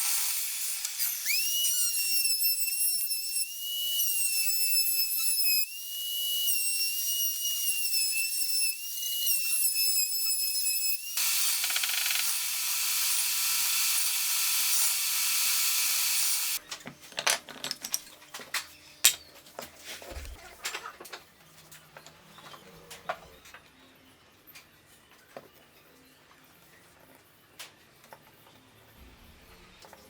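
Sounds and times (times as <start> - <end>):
tool hissing: 0.0 - 10.0, 10.9 - 16.6
power tool whining: 10.8 - 16.6.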